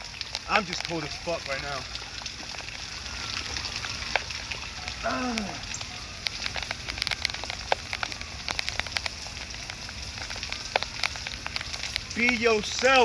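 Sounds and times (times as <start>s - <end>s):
rain hiss: 0.0s - 13.0s
raindrops ticking: 0.0s - 13.0s.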